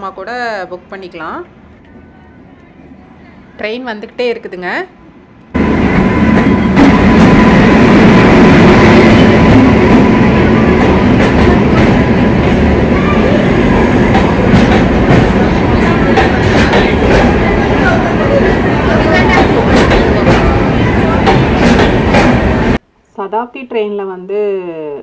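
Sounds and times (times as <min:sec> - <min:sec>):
train wheels on rails: 0:05.4 - 0:22.8.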